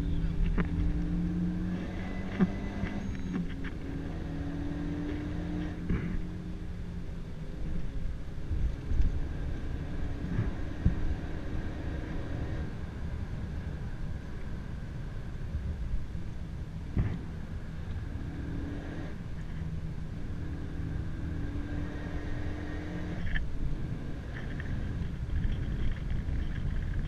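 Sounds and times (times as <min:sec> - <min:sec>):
car engine pulling hard: 0:00.0 - 0:06.8, 0:08.6 - 0:12.9
road rumble: 0:00.0 - 0:27.0.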